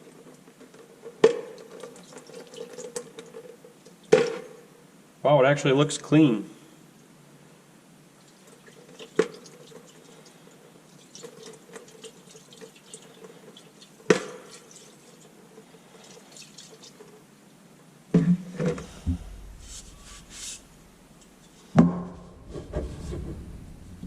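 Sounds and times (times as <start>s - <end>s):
fuel dripping into a pail: 18.7s - 21.4s
sharp knocks: 18.7s - 24.0s.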